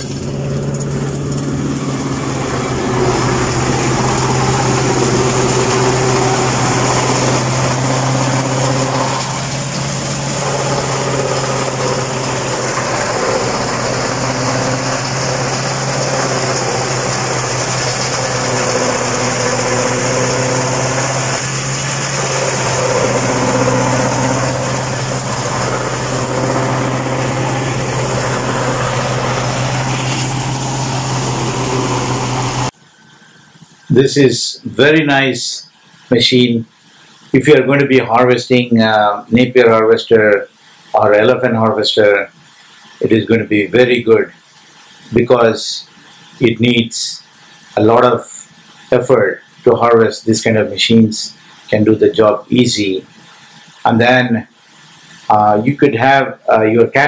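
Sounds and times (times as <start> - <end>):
tractor engine droning: 0.0 - 33.0
constant low hum: 0.0 - 46.3.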